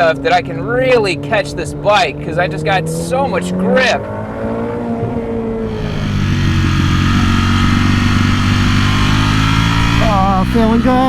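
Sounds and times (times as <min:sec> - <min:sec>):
motorcycle engine running: 0:03.2 - 0:11.0.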